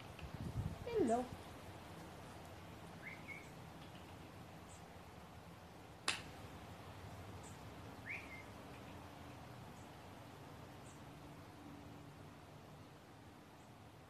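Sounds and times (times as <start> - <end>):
small bird chirping: 3.0 - 4.9, 7.4 - 9.1
sharp click: 6.1 - 6.3.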